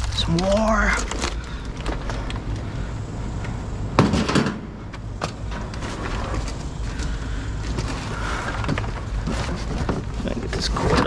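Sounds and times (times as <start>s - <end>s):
low rumble: 0.0s - 10.8s
objects knocking and clattering: 4.0s - 11.0s.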